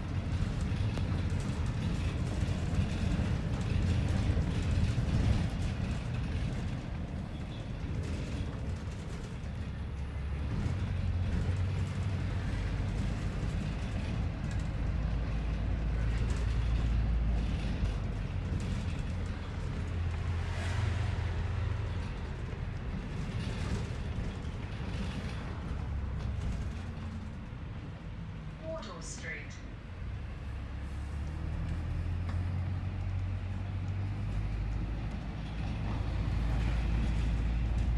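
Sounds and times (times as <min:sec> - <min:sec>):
bus engine rumble: 0:00.0 - 0:37.9
road noise inside bus: 0:00.0 - 0:37.9.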